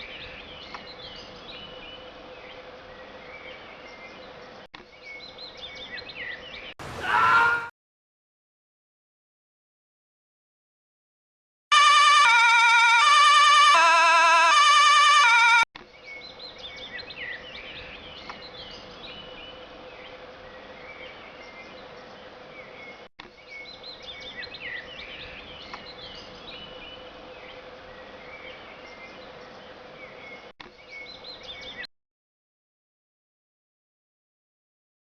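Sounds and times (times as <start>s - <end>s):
birds chirping: 0.0s - 7.7s, 15.2s - 31.9s.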